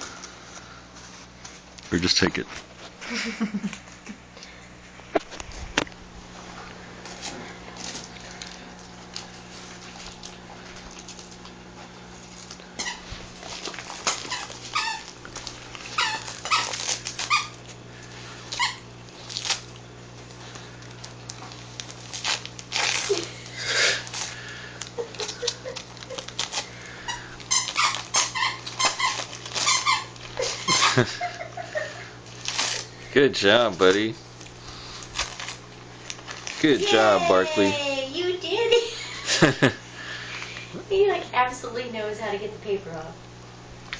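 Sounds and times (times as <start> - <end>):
dog tearing wrapping paper: 7.0 - 39.7
squeaky dog sounds: 14.3 - 15.1, 15.9 - 17.6, 18.5 - 18.8, 27.1 - 31.0.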